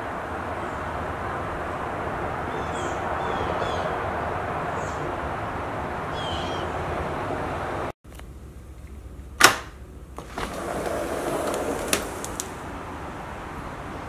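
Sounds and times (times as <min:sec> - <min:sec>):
outdoor background noise: 0:00.0 - 0:14.0
bird chirping: 0:02.5 - 0:04.0, 0:04.7 - 0:05.1, 0:06.1 - 0:06.9.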